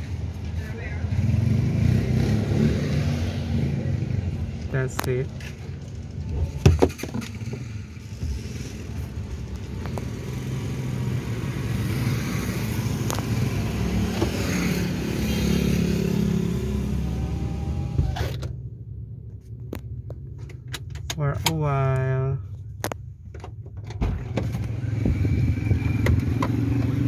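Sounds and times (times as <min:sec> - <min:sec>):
passing vehicle: 0:00.0 - 0:18.3, 0:24.1 - 0:27.0
road traffic: 0:00.0 - 0:27.0.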